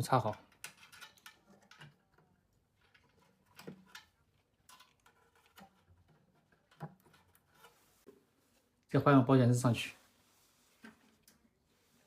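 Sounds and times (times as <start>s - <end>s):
small parts clicking and tapping: 0.0s - 7.7s.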